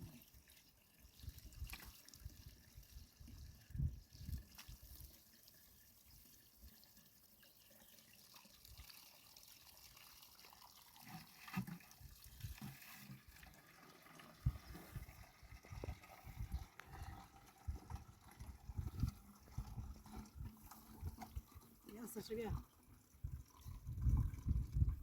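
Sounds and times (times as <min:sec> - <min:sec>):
water trickling and dripping: 0:00.0 - 0:25.0.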